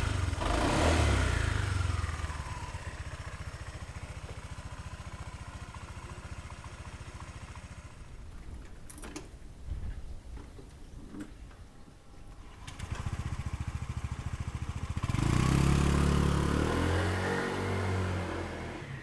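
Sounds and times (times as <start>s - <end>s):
scooter engine idling: 0.0s - 8.3s, 12.4s - 16.5s.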